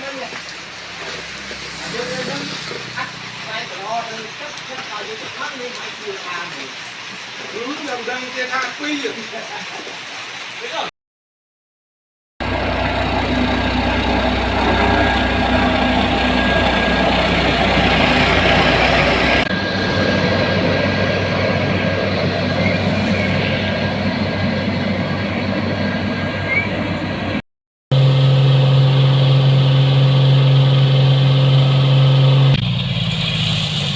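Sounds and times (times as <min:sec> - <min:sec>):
construction machinery diesel rumble: 0:12.4 - 0:27.4.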